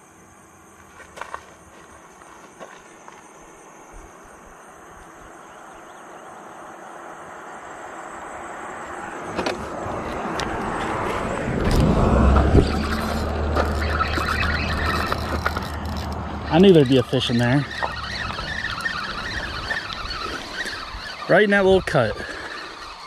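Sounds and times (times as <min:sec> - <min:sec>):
vehicle tyre and engine noise: 0:05.0 - 0:23.0.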